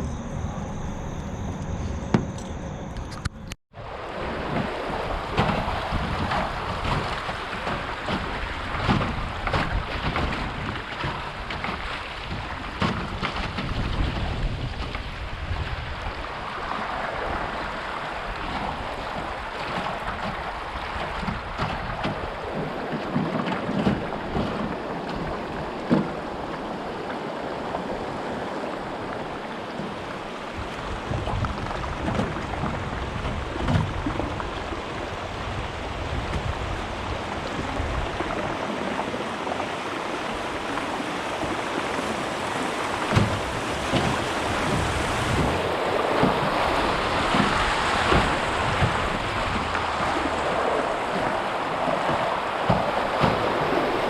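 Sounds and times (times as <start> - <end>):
wind buffeting microphone: 0.0 - 54.0
river rushing over rapids: 24.0 - 54.0.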